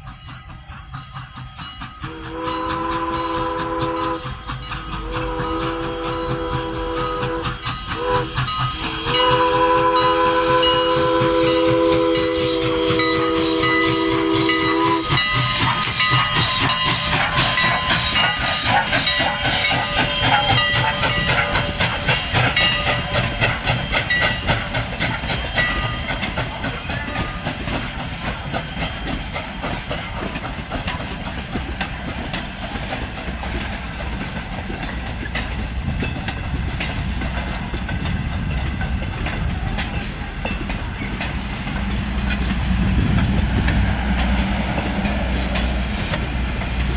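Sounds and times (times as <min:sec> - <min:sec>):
steam locomotive chime whistle: 0:00.0 - 0:36.2
train clattering and hissing: 0:00.0 - 0:46.9.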